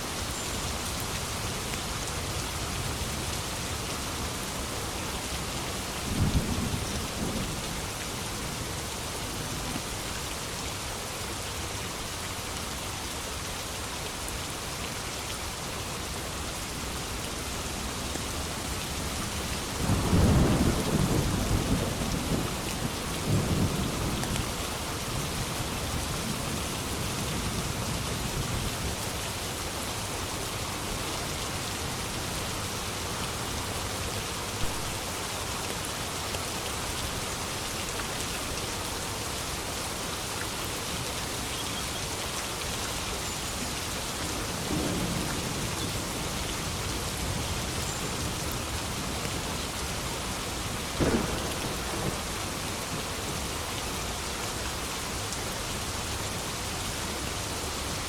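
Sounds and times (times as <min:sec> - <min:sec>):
heavy rain: 0:00.0 - 0:58.0
thunder rumbling: 0:51.0 - 0:53.4.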